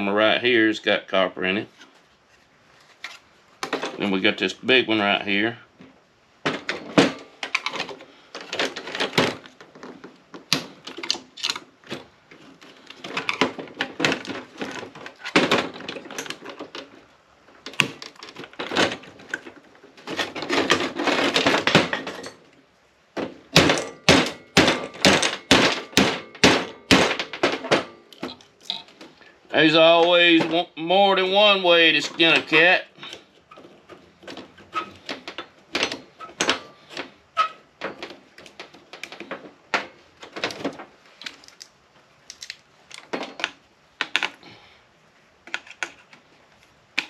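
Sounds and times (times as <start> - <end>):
hand tools clattering on metal: 31.3 - 40.8.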